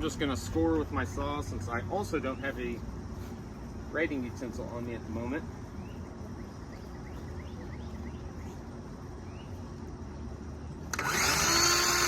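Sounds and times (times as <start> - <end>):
faint bird chirps: 5.7 - 9.7
circular saw cutting wood: 10.9 - 12.0.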